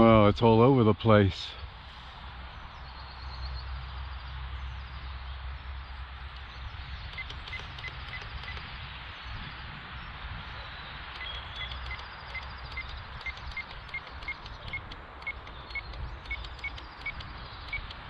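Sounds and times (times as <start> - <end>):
wind buffeting microphone: 6.4 - 18.0.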